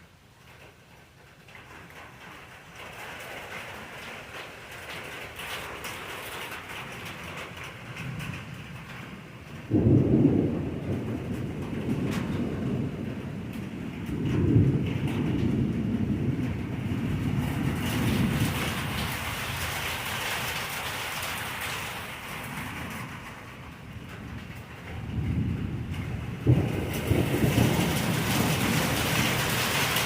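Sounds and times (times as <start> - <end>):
steady rain: 0.0 - 30.0
thunder rumbling: 6.8 - 30.0.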